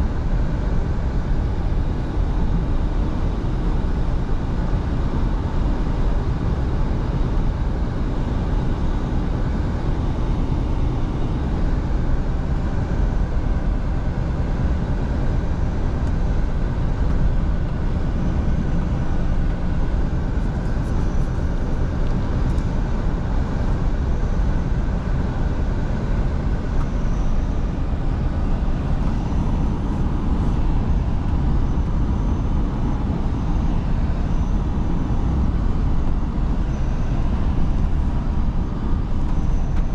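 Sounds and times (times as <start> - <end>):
road and wind noise: 0.0 - 39.9
truck engine hum: 15.8 - 39.9.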